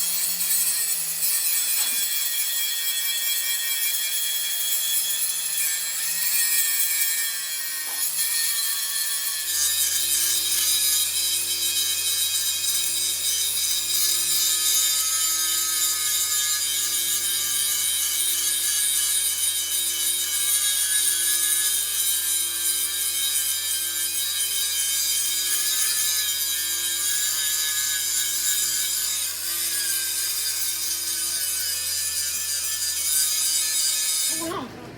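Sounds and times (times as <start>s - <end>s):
metal scraping with a tool: 0.0s - 34.7s.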